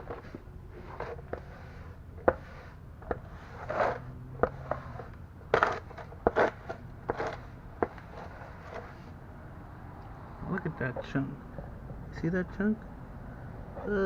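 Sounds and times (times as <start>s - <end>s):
rag wiping metal parts: 0.0s - 9.2s.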